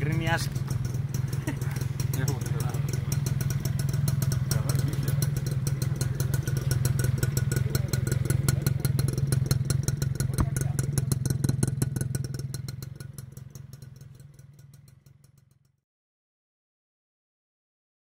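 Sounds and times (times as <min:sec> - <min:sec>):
motorcycle engine idling: 0:00.0 - 0:15.8.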